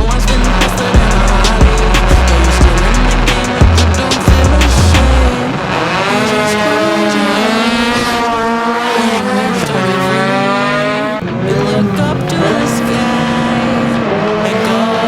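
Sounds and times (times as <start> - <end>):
heavy bass beat: 0.0 - 5.4
racing engine accelerating: 0.0 - 15.0.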